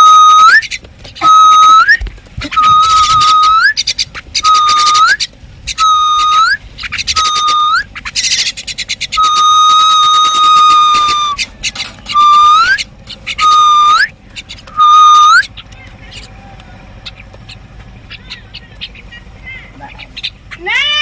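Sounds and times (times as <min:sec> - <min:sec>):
long held bird whistle: 0:00.0 - 0:11.5, 0:12.1 - 0:15.5
bird whistles: 0:00.0 - 0:15.6.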